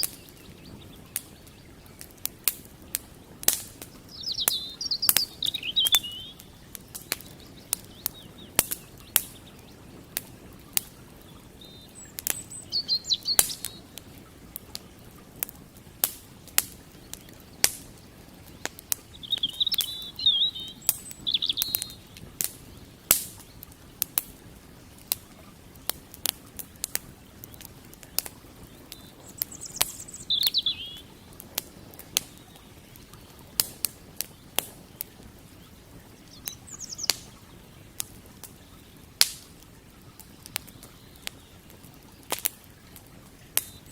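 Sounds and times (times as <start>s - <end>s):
small bird twittering: 0.0s - 2.1s, 3.6s - 14.9s, 16.8s - 23.7s, 27.4s - 37.8s
campfire crackling and popping: 0.0s - 43.9s.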